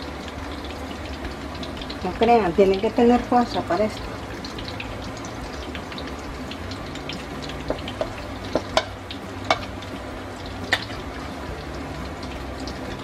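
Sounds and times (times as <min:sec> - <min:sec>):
salami sizzling in a skillet: 0:00.0 - 0:13.0
plantains being mashed in a bowl: 0:06.7 - 0:09.9.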